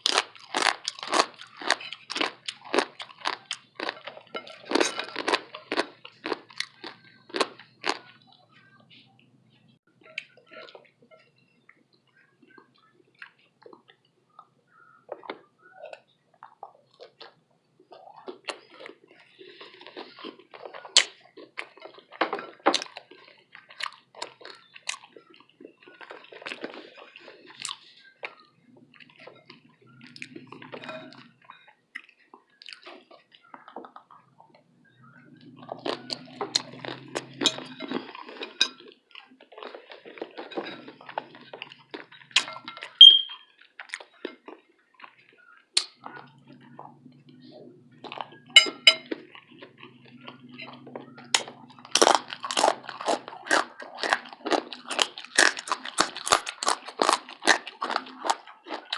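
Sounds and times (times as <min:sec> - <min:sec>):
chewing and crunching food: 0:00.0 - 0:58.9
wet mouth sounds: 0:45.8 - 0:58.9
bright clink: 0:48.6 - 0:49.1.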